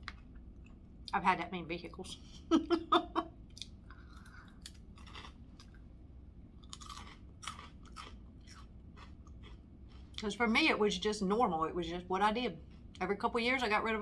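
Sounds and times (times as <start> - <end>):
person chewing food: 3.4 - 10.3.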